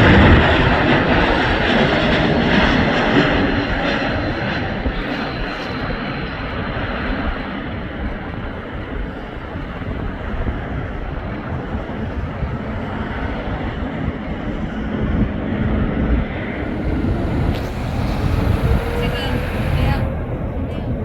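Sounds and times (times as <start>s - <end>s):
wind buffeting microphone: 0.0s - 21.0s
jet airliner roar: 12.7s - 21.0s.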